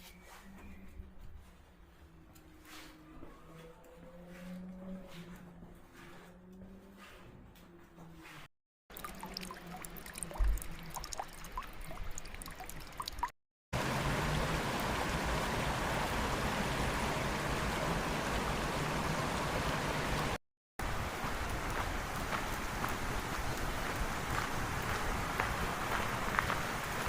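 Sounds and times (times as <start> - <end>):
stream water flowing: 8.9 - 27.0.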